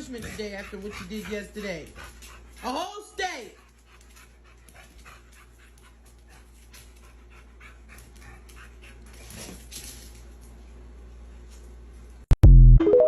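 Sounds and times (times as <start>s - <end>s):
dog panting: 0.0s - 9.6s.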